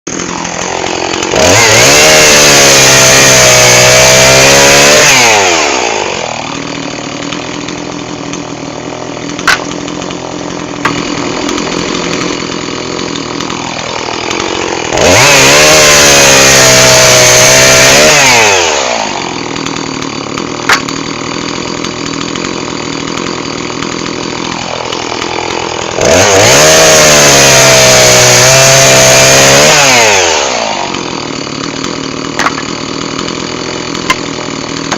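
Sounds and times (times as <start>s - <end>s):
chainsaw revving and idling: 0.1s - 34.9s.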